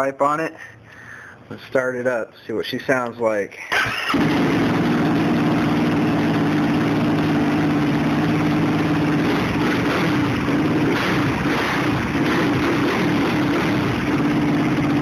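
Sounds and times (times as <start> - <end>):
quad engine idling: 4.1 - 15.0.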